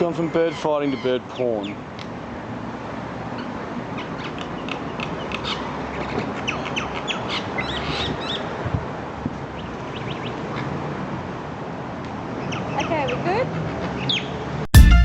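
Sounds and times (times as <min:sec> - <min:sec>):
birds chirping and squawking: 0:00.0 - 0:01.9, 0:03.2 - 0:08.6, 0:12.3 - 0:14.5.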